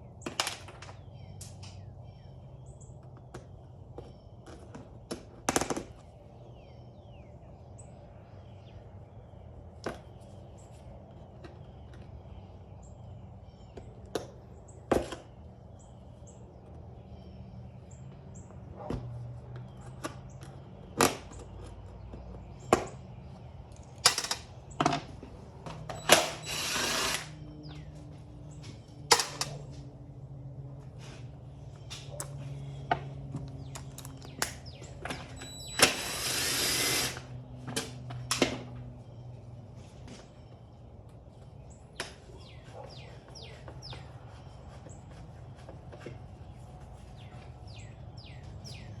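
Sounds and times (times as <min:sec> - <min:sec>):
tools and metal parts clanking: 0:23.7 - 0:26.5, 0:29.1 - 0:29.8, 0:33.4 - 0:36.0
power tool bursts: 0:25.9 - 0:27.4, 0:35.4 - 0:37.3.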